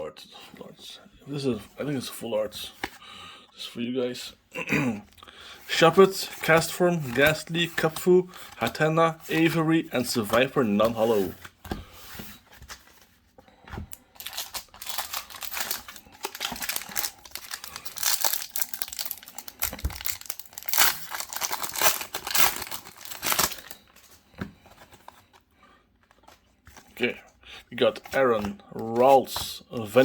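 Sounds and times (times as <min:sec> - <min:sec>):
foil wrapper crinkling and tearing: 0:14.2 - 0:23.8.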